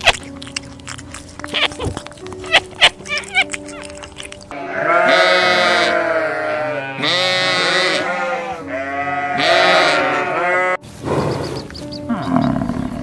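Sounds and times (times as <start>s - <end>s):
sheep bleating: 4.5s - 10.8s.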